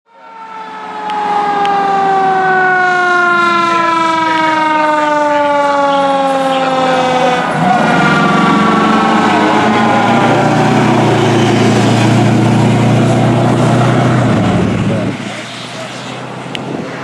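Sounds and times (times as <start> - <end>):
fire engine siren descending: 0.1 - 17.0
low steady truck tone: 4.1 - 15.9.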